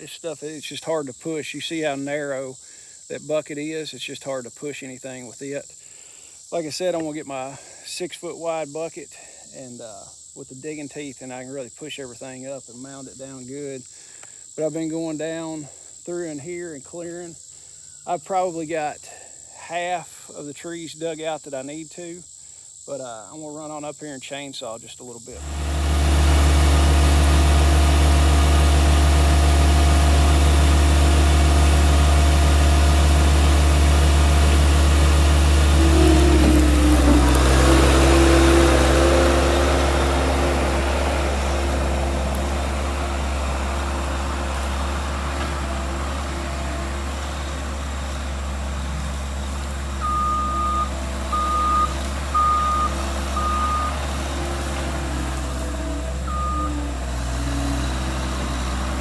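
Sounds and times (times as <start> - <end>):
loader engine running: 25.4 - 59.0
backup alarm beeping: 49.9 - 54.0, 56.2 - 56.9.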